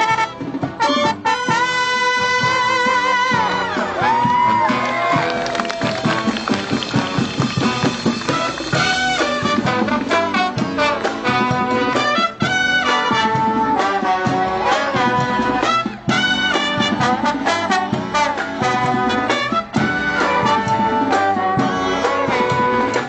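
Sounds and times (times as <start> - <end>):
brass band playing lively tune: 0.0 - 23.0.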